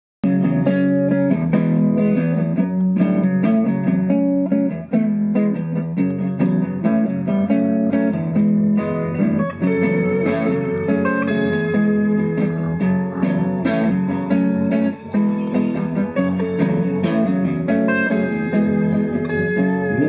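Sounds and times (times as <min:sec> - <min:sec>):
bass guitar: 0:00.2 - 0:20.0
strummed guitars: 0:00.2 - 0:20.0.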